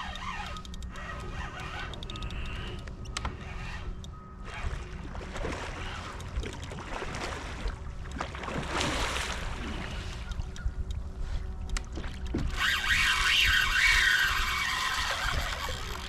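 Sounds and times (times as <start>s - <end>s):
water splashing around kayak: 4.5s - 16.0s.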